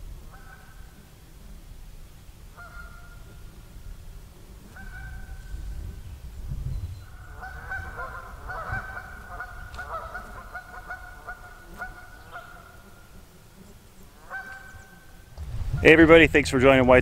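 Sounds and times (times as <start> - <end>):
water bird calling: 0.2 - 1.2, 2.5 - 3.7, 4.7 - 5.6, 6.9 - 13.1, 14.1 - 16.2
low rumble: 15.3 - 17.0.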